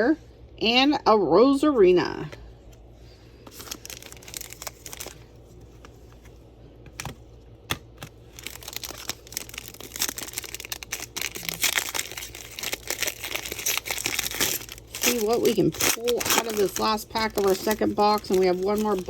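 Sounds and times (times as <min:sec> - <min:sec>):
foil wrapper crinkling: 0:03.4 - 0:06.3, 0:08.0 - 0:19.0.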